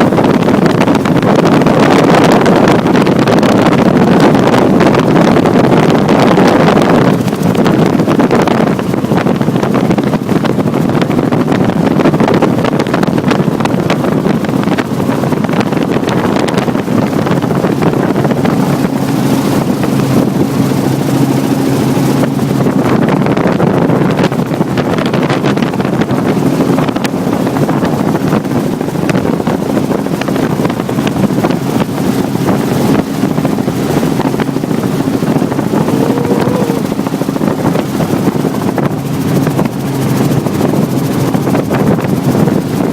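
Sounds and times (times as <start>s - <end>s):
helicopter engine and rotor drone: 0.0s - 42.9s
low hum: 31.3s - 41.0s.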